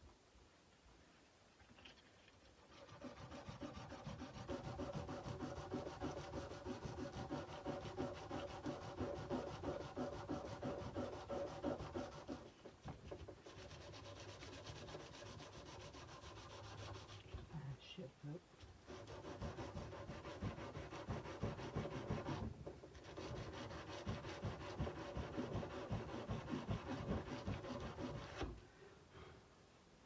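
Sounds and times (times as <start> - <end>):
sandpaper rubbing a blade: 2.6 - 12.5, 13.4 - 17.4, 18.9 - 28.5.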